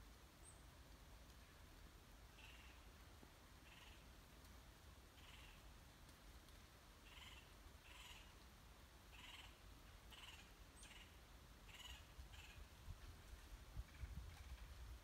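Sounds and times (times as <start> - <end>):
short bird calls: 7.0 - 8.4, 9.1 - 12.7
low wind rumble: 12.0 - 15.0.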